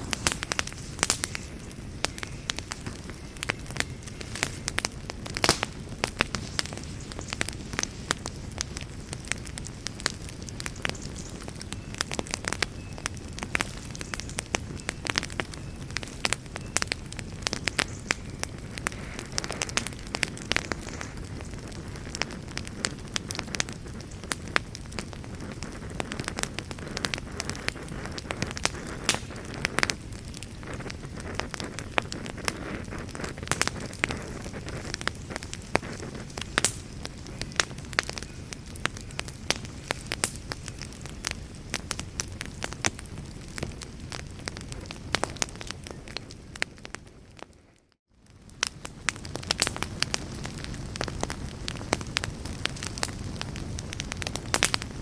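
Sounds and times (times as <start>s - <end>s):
low rush of flame: 0.0s - 15.2s, 18.4s - 47.5s, 48.2s - 55.0s
burning wood crackling: 0.0s - 55.0s.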